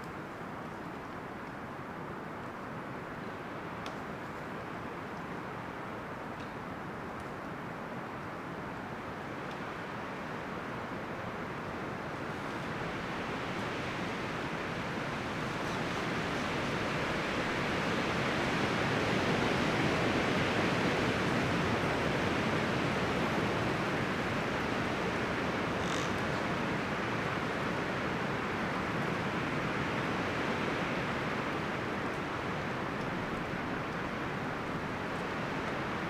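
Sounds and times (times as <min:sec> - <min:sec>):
wind rustling tree leaves: 0:07.8 - 0:36.0.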